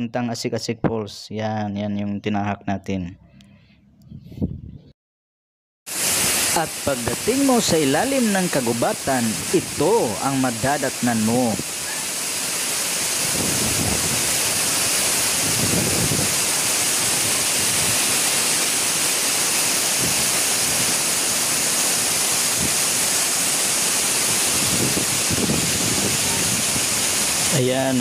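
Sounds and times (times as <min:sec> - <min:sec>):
waterfall splashing onto rocks: 0:05.9 - 0:28.0.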